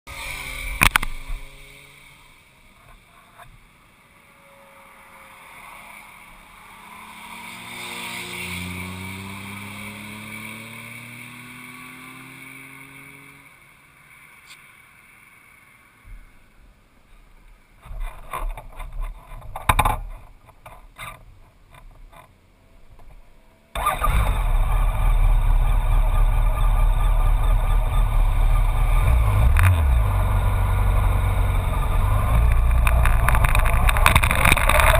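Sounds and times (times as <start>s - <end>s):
faint engine rising in pitch: 23.7s - 34.9s
motorcycle engine idling: 23.8s - 34.1s.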